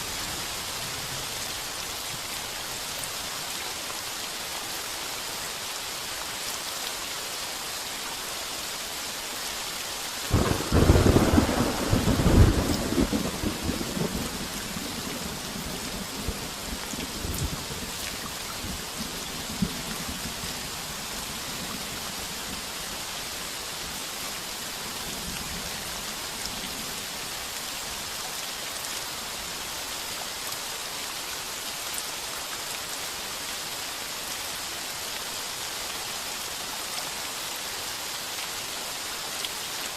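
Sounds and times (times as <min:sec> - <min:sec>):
heavy rain on a tin roof: 0:00.0 - 0:39.9
thunderclap rumbling: 0:10.3 - 0:14.5
distant thunder rumble: 0:10.3 - 0:16.4.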